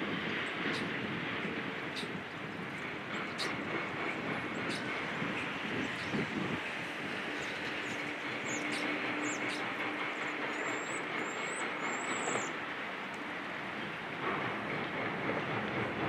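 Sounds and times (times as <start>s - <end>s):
heavy machinery engines: 2.0s - 16.0s
traffic: 2.7s - 14.2s.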